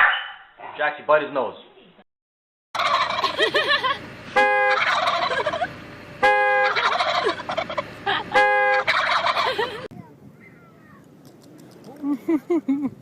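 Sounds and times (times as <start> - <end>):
fowl chirping: 2.8 - 3.4, 4.4 - 9.8
loud held fowl calls: 2.8 - 3.5, 4.4 - 9.9.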